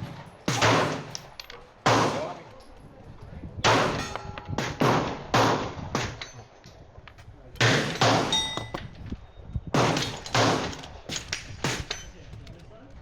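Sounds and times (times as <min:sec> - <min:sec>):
gunshots echoing: 0:00.0 - 0:02.4, 0:03.6 - 0:06.2, 0:07.6 - 0:08.8, 0:09.8 - 0:11.9.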